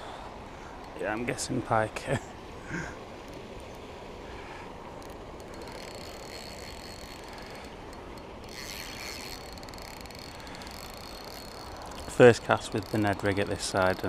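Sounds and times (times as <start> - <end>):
fishing reel clicking and whirring: 4.9 - 14.0
fishing reel rasp: 5.0 - 14.0.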